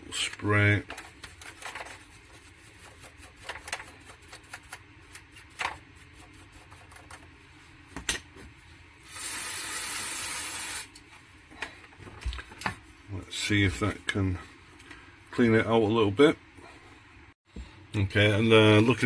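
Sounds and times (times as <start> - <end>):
aerosol spray hiss: 9.1 - 10.9.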